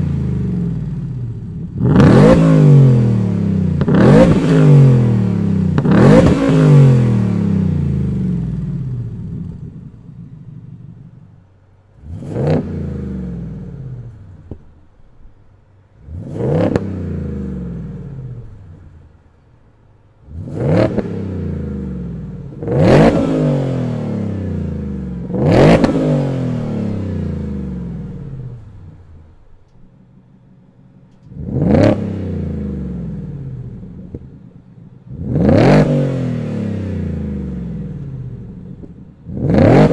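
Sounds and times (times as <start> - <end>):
truck engine revving: 0.0 - 9.6, 12.0 - 14.2, 16.0 - 18.6, 20.2 - 28.8, 31.2 - 34.2, 35.0 - 39.9.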